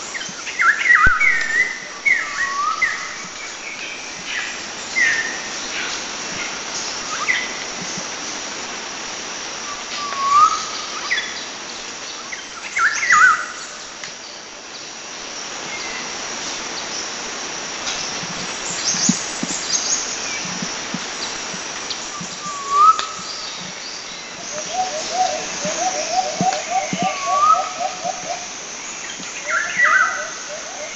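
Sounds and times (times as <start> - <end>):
forest ambience: 0.0 - 30.9
birds calling and singing: 18.0 - 30.9.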